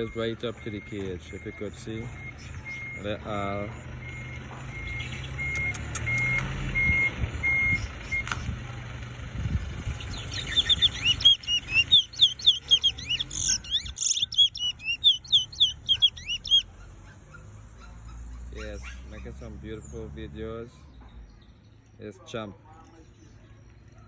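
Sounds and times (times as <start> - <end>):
reversing alarm beeping: 0.0 - 8.3
low engine rumble: 0.0 - 21.9
bird singing twittering song: 0.0 - 22.0.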